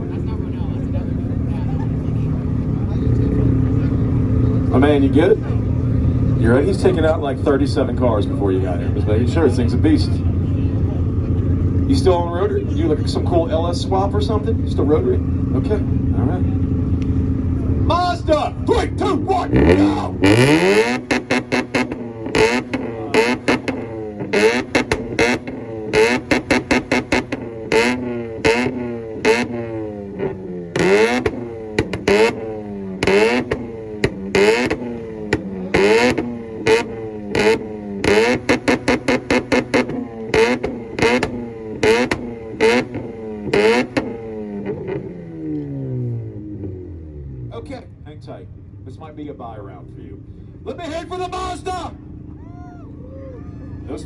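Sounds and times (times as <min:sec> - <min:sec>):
exhaust bangs: 0:00.0 - 0:54.0
engine revving hard: 0:17.3 - 0:47.6.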